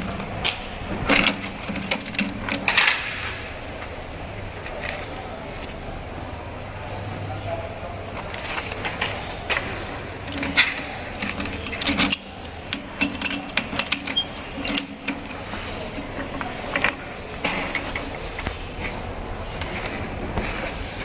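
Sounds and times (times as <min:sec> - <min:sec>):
metal clicks and clinks: 0:01.1 - 0:03.1, 0:10.2 - 0:18.1.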